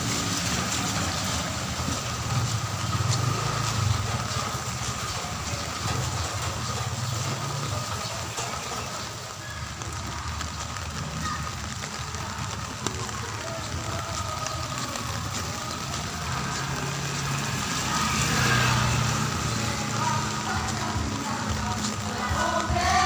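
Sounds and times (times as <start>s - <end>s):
engine running low: 0.0s - 10.8s
rain hissing: 0.0s - 23.0s.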